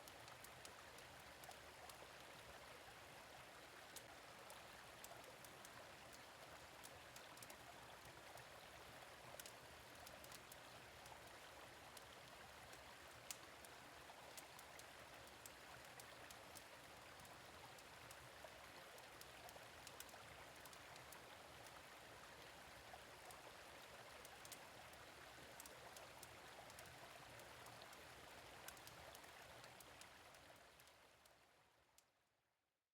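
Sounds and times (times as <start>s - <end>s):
stream flowing: 0.0s - 31.7s
fire crackling and popping: 28.7s - 28.9s.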